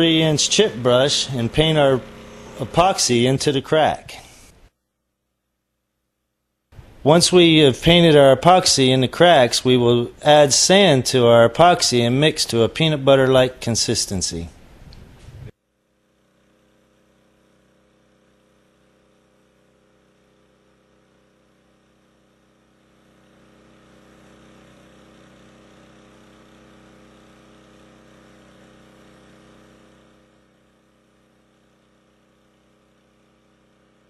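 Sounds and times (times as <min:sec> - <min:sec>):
faint motor hum: 0:00.0 - 0:04.7, 0:06.8 - 0:34.0.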